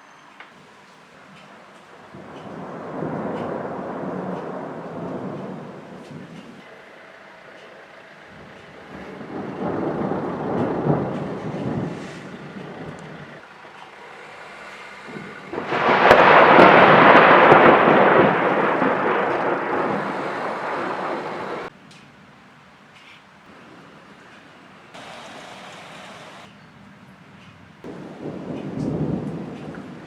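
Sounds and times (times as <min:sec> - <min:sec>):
thunder rumbling: 0:01.3 - 0:06.6, 0:08.3 - 0:13.4, 0:14.4 - 0:21.7, 0:27.8 - 0:30.0
sharp thunderclap: 0:02.1 - 0:06.6, 0:08.9 - 0:13.4, 0:15.1 - 0:21.7, 0:27.9 - 0:30.0.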